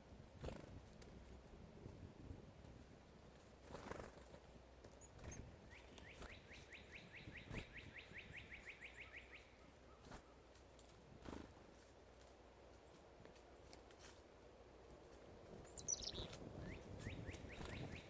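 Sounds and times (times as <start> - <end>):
bird trilling: 5.1 - 9.5, 15.7 - 18.0.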